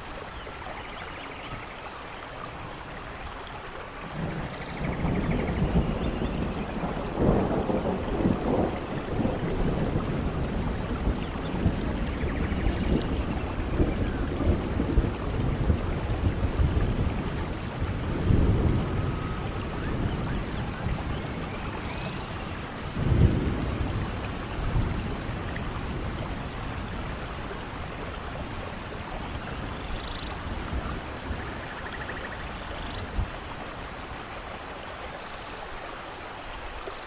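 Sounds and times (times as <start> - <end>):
steady rain: 0.0 - 37.0
thunder rumbling: 4.0 - 33.4.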